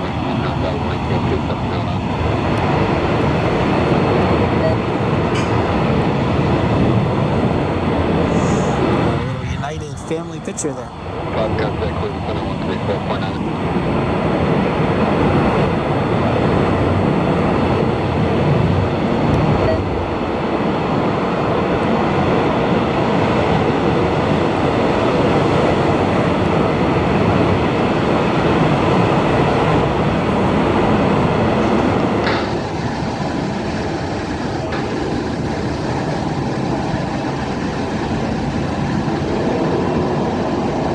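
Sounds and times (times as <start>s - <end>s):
jet engines rumbling: 0.0s - 40.9s.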